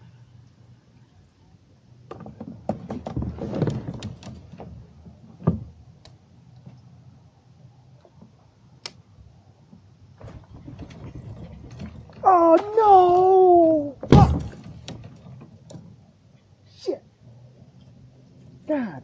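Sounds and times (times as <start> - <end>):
gear knocking and rattling: 10.2 - 15.9.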